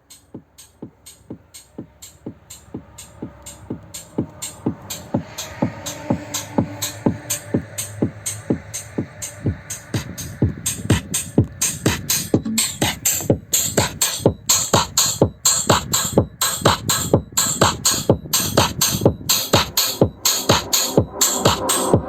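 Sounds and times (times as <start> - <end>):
electronic dance music: 0.1 - 22.0.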